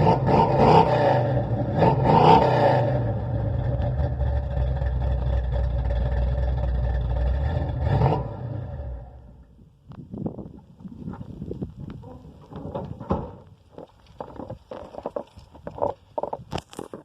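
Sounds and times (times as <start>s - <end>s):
car engine idling: 2.8s - 9.6s.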